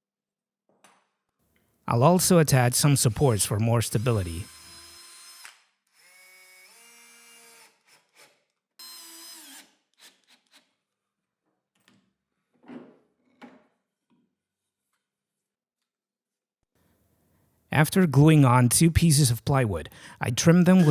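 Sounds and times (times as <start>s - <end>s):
power drill driving screws: 3.1s - 10.6s.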